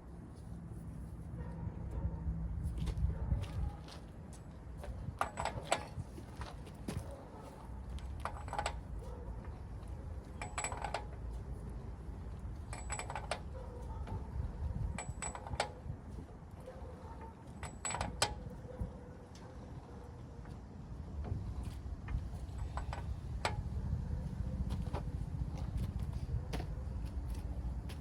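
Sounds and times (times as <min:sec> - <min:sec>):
steady low rumble: 0:20.9 - 0:28.0.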